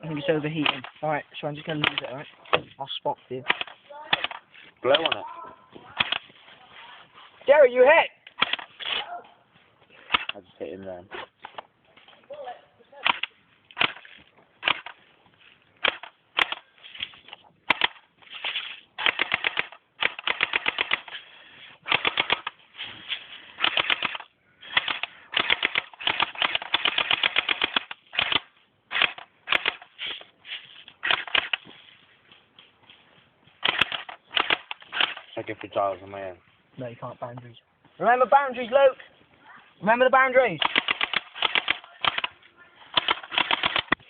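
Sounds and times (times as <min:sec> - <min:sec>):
airsoft guns firing bursts: 0:00.4 - 0:01.0, 0:03.5 - 0:05.2, 0:08.4 - 0:08.8, 0:13.0 - 0:15.0, 0:15.8 - 0:16.7, 0:17.6 - 0:18.0, 0:19.0 - 0:21.2, 0:21.8 - 0:22.6, 0:23.6 - 0:29.9, 0:33.6 - 0:35.3, 0:40.5 - 0:44.0.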